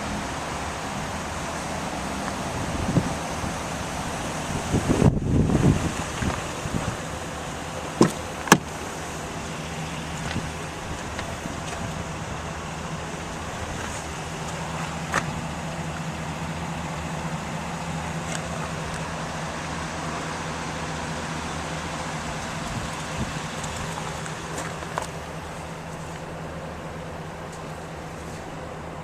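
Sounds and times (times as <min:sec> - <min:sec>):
pickup engine idling: 0:00.0 - 0:29.0.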